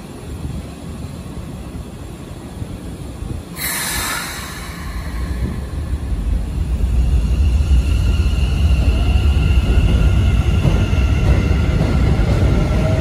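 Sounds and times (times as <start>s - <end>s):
train low rumble: 0.0s - 13.0s
compressed air hiss: 3.6s - 6.7s.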